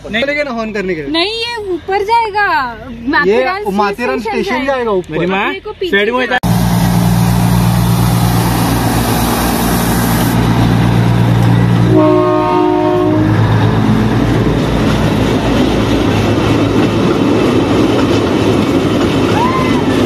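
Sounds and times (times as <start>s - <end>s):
diesel locomotive running: 0.0s - 20.0s
train horn: 11.8s - 13.6s.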